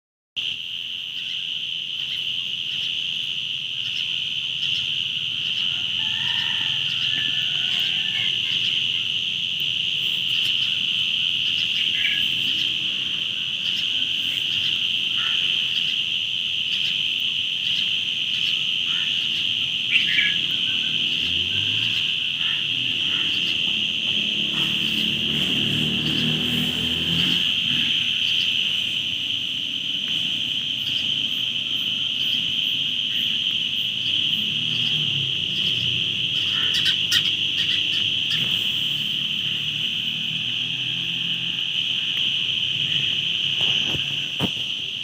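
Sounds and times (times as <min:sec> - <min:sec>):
insect chorus droning: 0:00.4 - 0:45.0.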